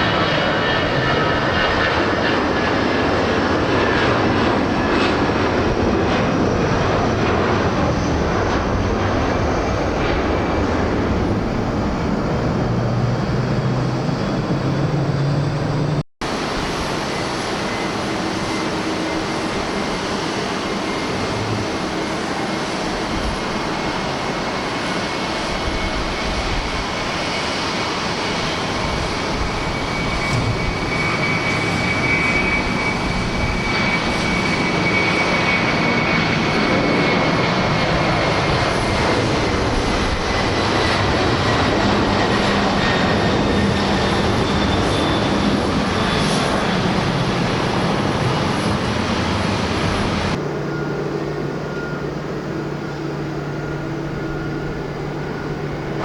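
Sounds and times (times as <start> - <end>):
jet engines at takeoff thrust: 0.0 - 56.0
low hum: 29.9 - 34.0.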